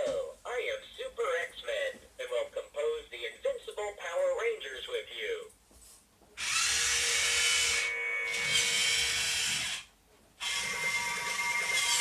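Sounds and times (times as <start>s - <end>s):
toy robot hissing and whirring: 6.4s - 7.8s, 8.4s - 12.0s.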